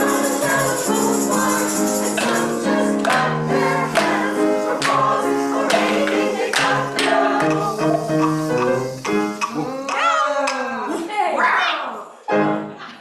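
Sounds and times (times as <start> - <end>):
choir singing in harmony: 0.0 - 9.5, 12.3 - 12.9
percussion strikes: 0.0 - 10.6.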